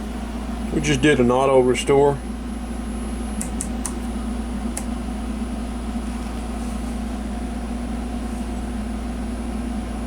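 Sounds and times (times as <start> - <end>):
low machine hum: 0.0 - 10.0
sharp click: 3.4 - 4.0.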